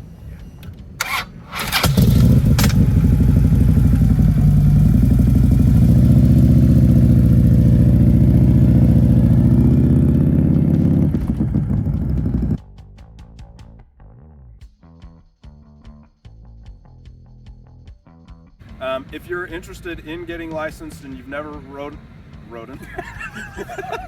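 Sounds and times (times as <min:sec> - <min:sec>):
motorcycle engine idling: 0:00.2 - 0:12.6, 0:18.6 - 0:24.0.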